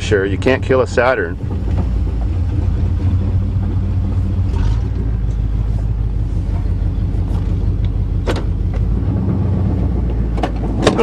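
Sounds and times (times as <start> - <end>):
engine and road rumble in cab: 0.0 - 11.0.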